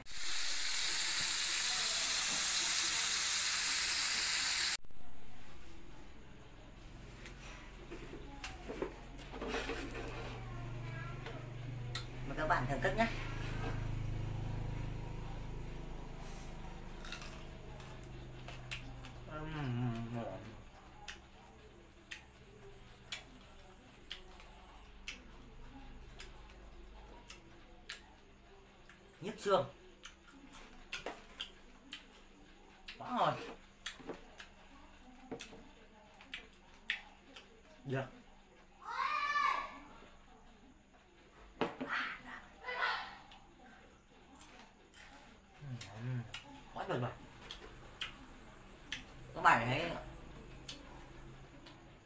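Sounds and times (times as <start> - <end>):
birds sizzling in a hot pan: 0.0 - 4.8.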